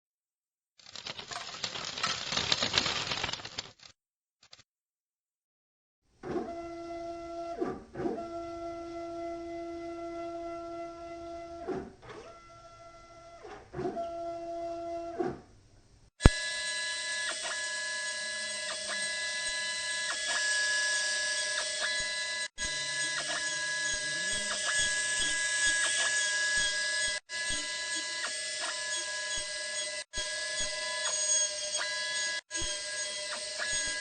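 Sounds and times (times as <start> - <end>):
machine whine of stepper motors: 16.3 - 34.0.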